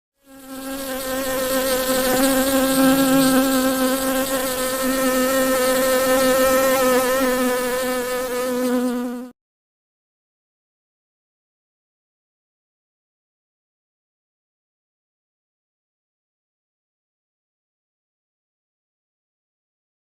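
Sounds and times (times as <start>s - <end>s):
honeybee buzzing in flight: 0.2s - 9.4s.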